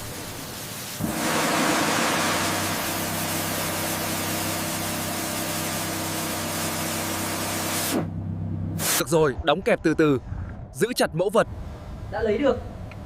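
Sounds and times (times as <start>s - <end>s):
steady rushing hiss: 0.0s - 8.1s
low mechanical hum: 2.4s - 8.9s, 11.4s - 13.0s.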